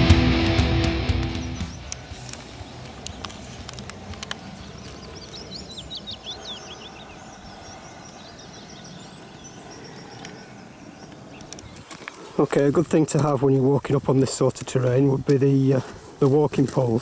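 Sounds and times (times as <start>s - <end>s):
small bird twittering: 1.2s - 11.9s
faint ticks: 11.1s - 12.2s.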